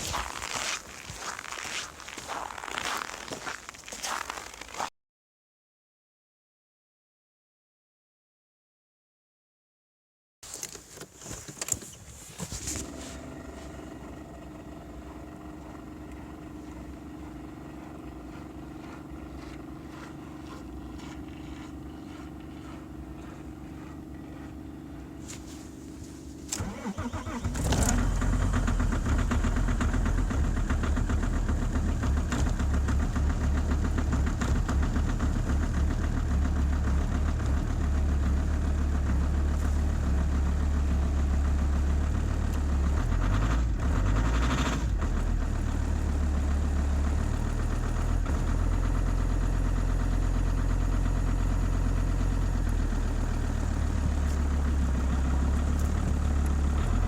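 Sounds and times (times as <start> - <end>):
diesel engine idling: 12.8 - 57.0
engine starter cranking: 26.4 - 33.0.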